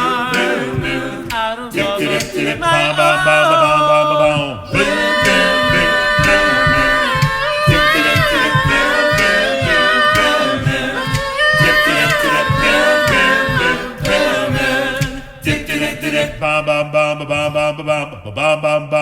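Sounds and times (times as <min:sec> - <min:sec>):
male vocal group singing harmonies: 0:00.0 - 0:19.0.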